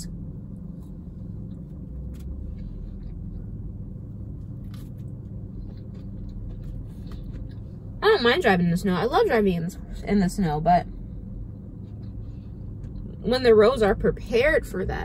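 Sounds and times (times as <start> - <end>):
low rumble in car cabin: 0.0 - 15.0
faint chewing: 4.4 - 7.7.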